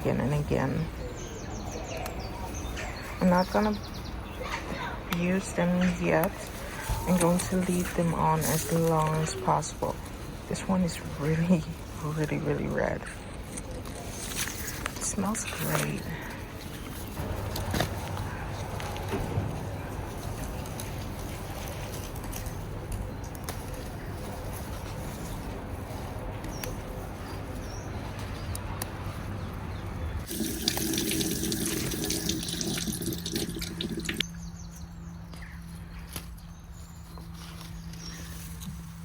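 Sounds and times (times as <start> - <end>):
water running: 30.3 - 34.2.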